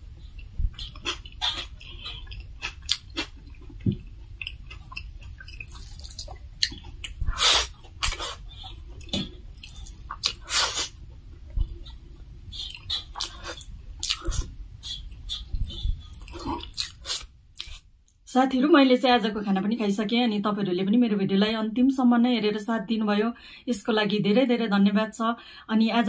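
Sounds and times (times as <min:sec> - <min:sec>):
wet chewing and lip smacks: 0:00.2 - 0:17.8.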